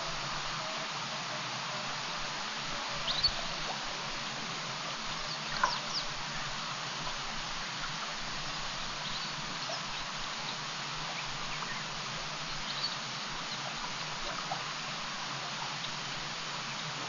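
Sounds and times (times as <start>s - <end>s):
steady outdoor hiss: 0.0s - 17.0s
faint bird chirps: 3.0s - 3.6s, 8.8s - 11.9s, 12.5s - 16.0s.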